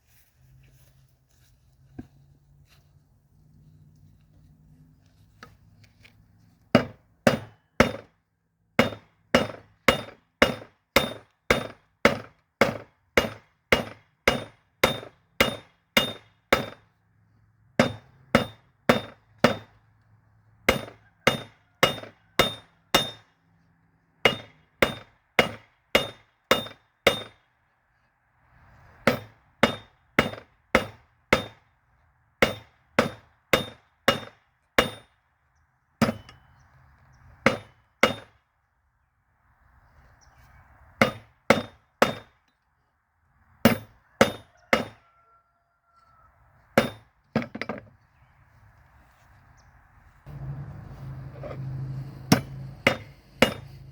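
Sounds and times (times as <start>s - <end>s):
hammer striking metal on anvil: 6.8s - 8.1s, 8.8s - 16.8s, 17.8s - 19.8s, 20.7s - 23.3s, 24.2s - 27.4s, 29.1s - 31.6s, 32.4s - 35.2s, 36.0s - 36.4s, 37.5s - 38.4s, 41.0s - 42.4s, 43.7s - 45.0s, 46.8s - 47.6s, 50.3s - 53.9s.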